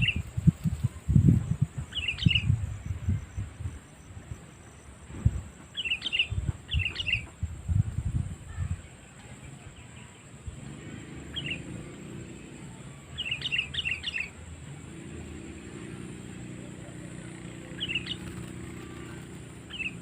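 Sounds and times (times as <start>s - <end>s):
bulbul calling: 11.2s - 11.9s, 13.2s - 14.4s, 17.1s - 20.0s.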